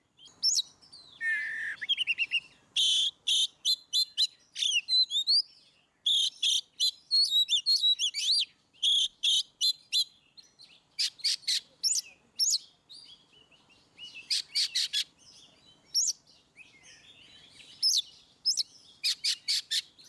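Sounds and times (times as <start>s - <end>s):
songbird singing whistled notes: 0.1s - 20.0s.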